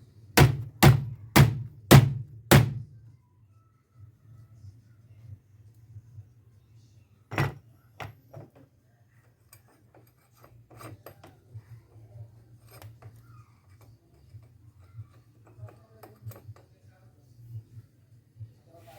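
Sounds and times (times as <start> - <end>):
metal parts clicking and tapping: 7.3 - 11.6, 12.5 - 16.8.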